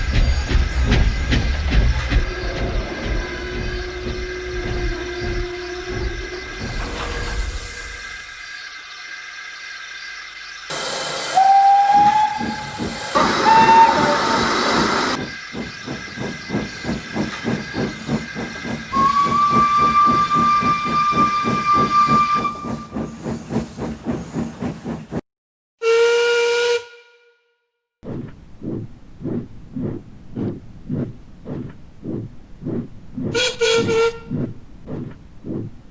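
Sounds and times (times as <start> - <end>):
steam engine chuffing: 0.0 - 8.7, 10.7 - 25.2, 28.0 - 35.9
steam hiss: 0.0 - 8.9, 10.7 - 25.1
steam locomotive whistle: 10.7 - 15.2, 18.9 - 23.2, 25.8 - 27.4, 33.3 - 34.3.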